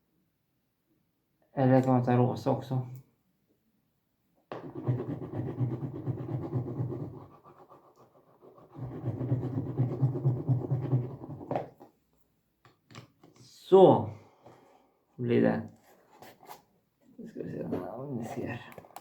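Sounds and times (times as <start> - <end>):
pen scribbling on paper: 4.6 - 11.6.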